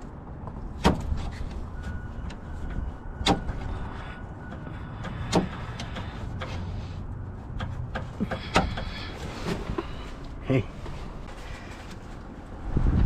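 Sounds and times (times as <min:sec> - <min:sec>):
car parts clicking and knocking: 0:00.0 - 0:12.3
steady low rumble: 0:05.7 - 0:13.0.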